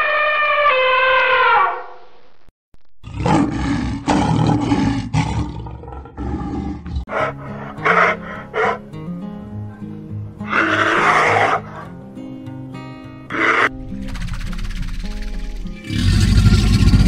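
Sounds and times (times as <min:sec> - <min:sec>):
elephant trumpeting: 0:00.0 - 0:01.9, 0:06.2 - 0:08.9, 0:10.4 - 0:11.9, 0:13.3 - 0:17.0
tiger roaring: 0:03.0 - 0:09.0, 0:10.4 - 0:12.0, 0:13.3 - 0:17.0.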